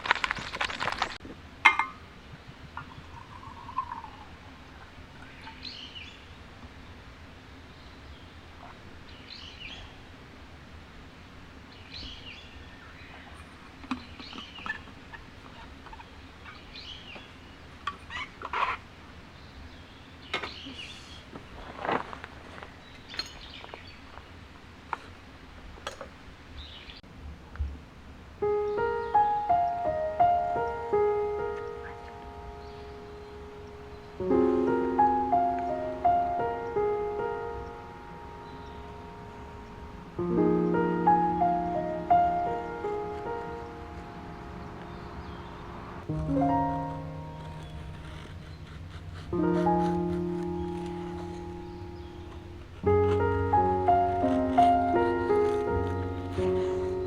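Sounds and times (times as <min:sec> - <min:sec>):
crackling and rustling: 0:00.0 - 0:05.6, 0:20.3 - 0:26.2, 0:29.1 - 0:57.0
faint bird chirps: 0:02.8 - 0:06.4
background piano music: 0:28.4 - 0:57.0.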